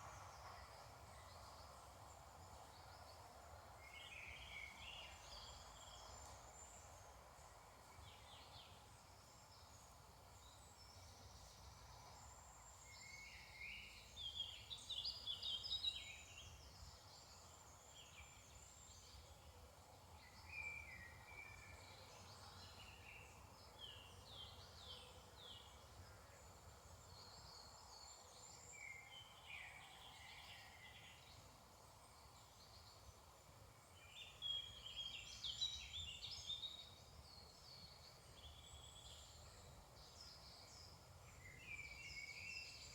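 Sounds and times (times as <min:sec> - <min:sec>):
songbirds singing: 0:20.1 - 0:42.9.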